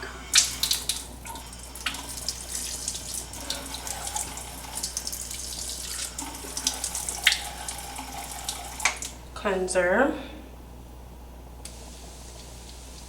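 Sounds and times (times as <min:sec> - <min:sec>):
tap running into sink: 0:00.4 - 0:09.2
water splashing in basin: 0:00.4 - 0:09.2.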